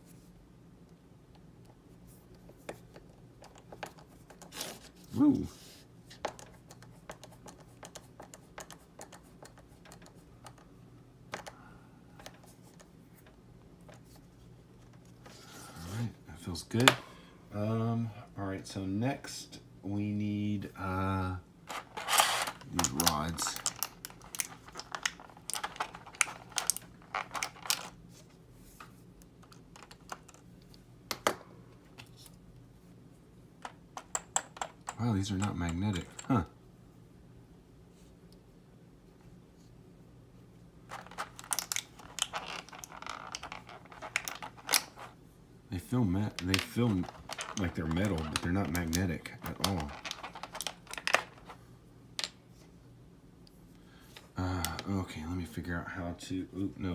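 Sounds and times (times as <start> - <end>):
steady low hum: 0.0 - 56.9
plastic parts clicking and tapping: 11.3 - 11.6, 21.7 - 28.0, 29.4 - 31.4, 40.9 - 45.1, 46.3 - 51.6.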